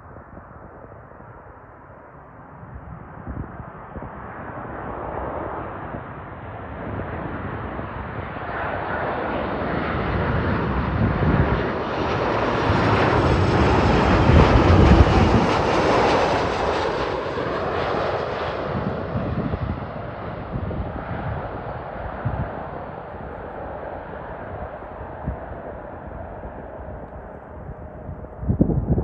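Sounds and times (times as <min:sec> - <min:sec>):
jet airliner roaring overhead: 0:00.1 - 0:29.0.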